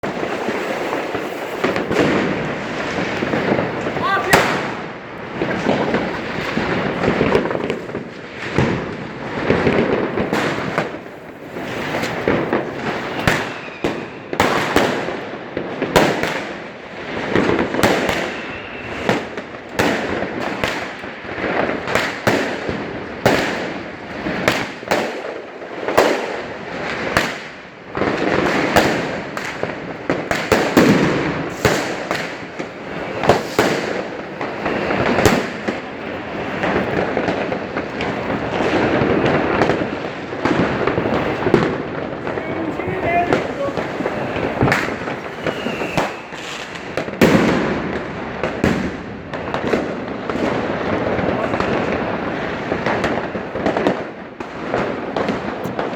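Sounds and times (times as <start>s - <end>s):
crackling rumble: 0.0s - 13.3s, 34.0s - 55.9s
fireworks bangs: 0.0s - 55.9s.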